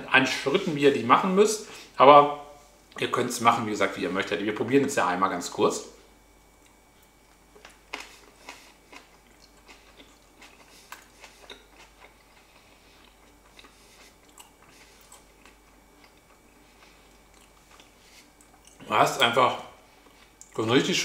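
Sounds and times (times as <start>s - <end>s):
person chewing food: 6.4s - 18.9s, 19.8s - 20.6s.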